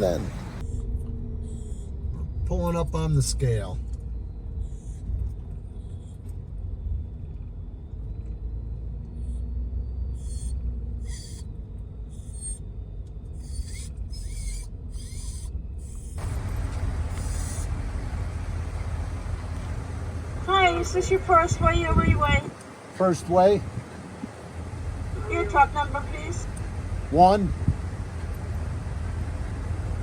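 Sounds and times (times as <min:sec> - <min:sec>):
pickup truck engine rumble: 0:00.0 - 0:00.7, 0:16.2 - 0:30.0.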